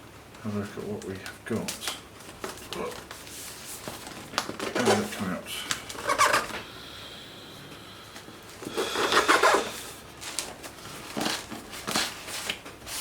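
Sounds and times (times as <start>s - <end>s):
cardboard and packing peanuts rustling: 0.6s - 6.5s, 8.5s - 13.0s.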